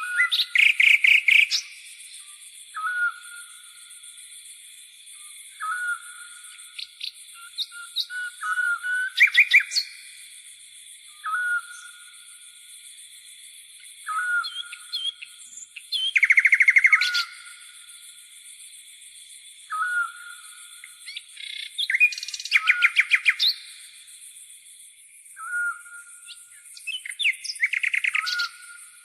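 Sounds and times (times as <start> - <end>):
bird trill: 0.0 - 2.2, 2.8 - 3.9, 5.5 - 10.1, 11.1 - 12.3, 14.0 - 17.8, 19.7 - 23.8, 25.4 - 29.0
birds whistling and chirping: 0.0 - 3.9, 5.1 - 10.2, 11.1 - 12.4, 13.9 - 17.7, 19.7 - 23.9, 25.3 - 29.0.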